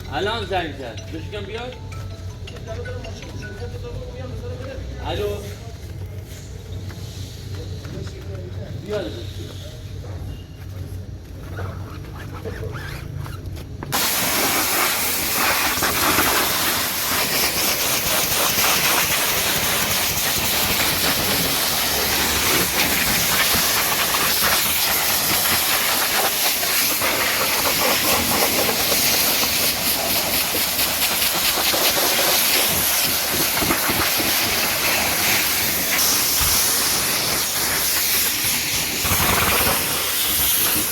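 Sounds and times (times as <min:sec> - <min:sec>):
pressure washer water jet spraying: 0:13.9 - 0:40.9.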